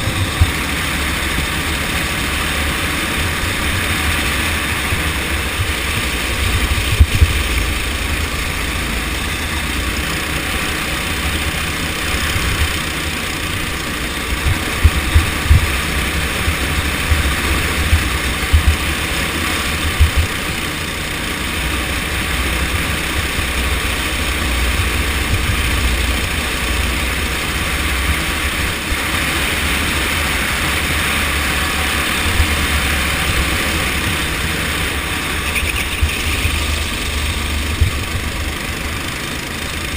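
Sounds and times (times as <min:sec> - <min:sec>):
gusty low rumbling: 0:00.0 - 0:09.1, 0:12.0 - 0:20.4
go-kart engine running: 0:00.0 - 0:39.9.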